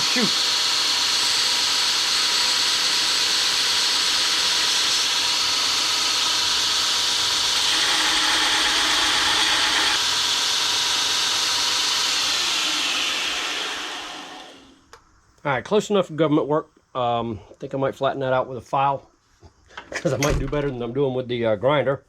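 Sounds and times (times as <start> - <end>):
grinder whining on steel: 0.0 - 14.9.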